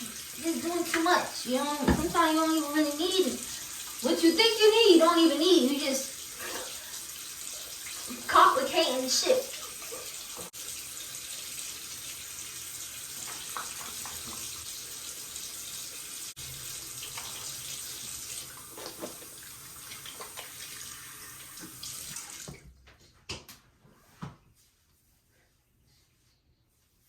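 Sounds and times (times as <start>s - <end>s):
tap running into sink: 1.8s - 2.5s, 13.1s - 14.7s, 21.4s - 22.6s.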